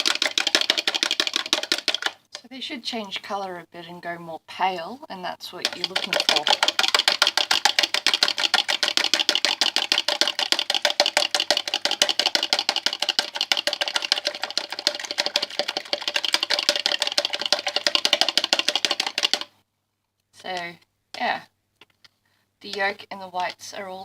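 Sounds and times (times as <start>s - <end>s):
fork beating eggs in a jug: 0.0s - 2.5s, 5.4s - 19.5s.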